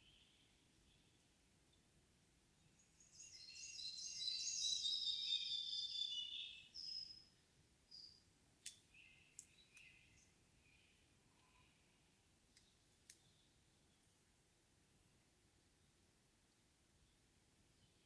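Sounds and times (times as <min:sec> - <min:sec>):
songbird singing whistled notes: 0:02.8 - 0:07.3, 0:07.9 - 0:10.9
bird sharp ticks: 0:08.6 - 0:10.0.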